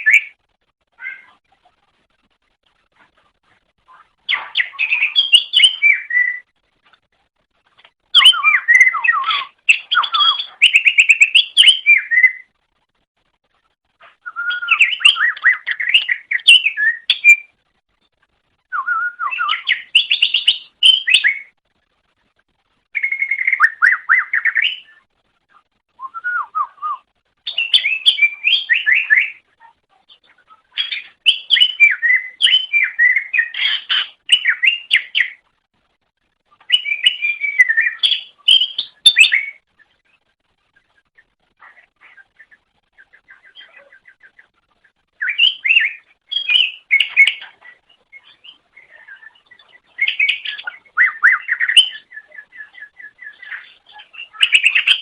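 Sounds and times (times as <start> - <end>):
bird singing whistled phrases: 4.3 - 6.5, 8.1 - 12.5, 14.2 - 17.6, 18.7 - 21.5, 23.0 - 25.0, 26.0 - 29.4, 30.8 - 35.4, 36.7 - 39.6, 45.2 - 47.4, 48.1 - 55.0.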